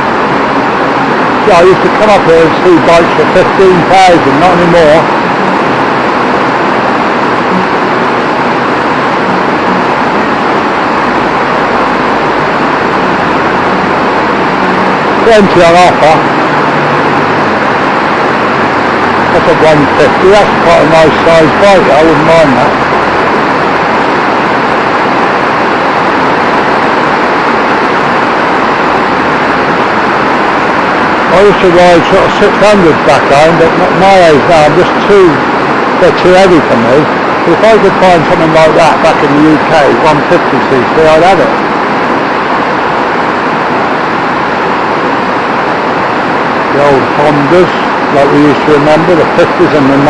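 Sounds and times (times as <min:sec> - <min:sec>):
heavy rain downpour: 0:00.0 - 0:50.0.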